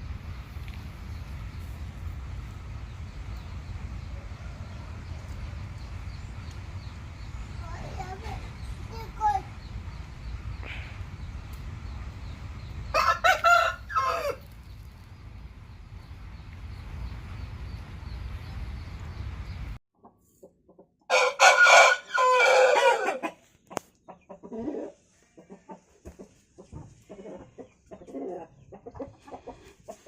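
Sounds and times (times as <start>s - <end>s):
steady rushing noise: 0.0s - 13.0s
rooster crowing: 12.9s - 14.4s, 21.1s - 23.3s
chicken clucking: 20.0s - 21.1s, 23.2s - 30.0s.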